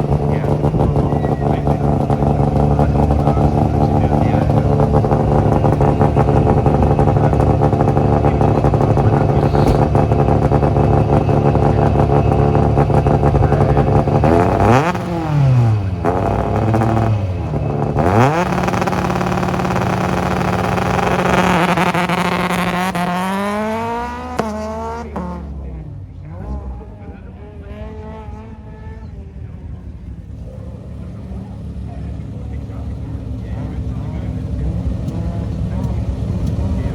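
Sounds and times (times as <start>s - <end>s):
gear change: 0.0s - 36.9s
rally car engine revving: 0.0s - 36.9s.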